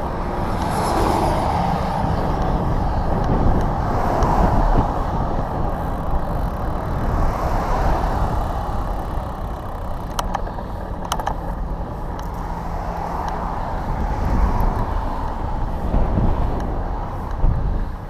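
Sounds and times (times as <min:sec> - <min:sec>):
road traffic: 0:00.0 - 0:18.0
wind on microphone: 0:00.0 - 0:18.0
sharp clicks: 0:08.9 - 0:11.5.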